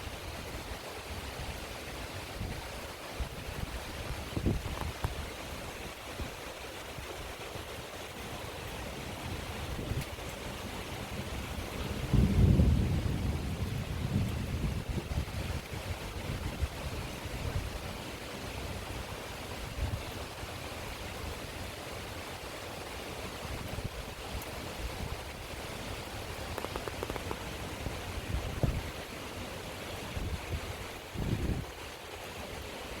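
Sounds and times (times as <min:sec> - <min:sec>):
rain hissing: 0:22.6 - 0:33.0.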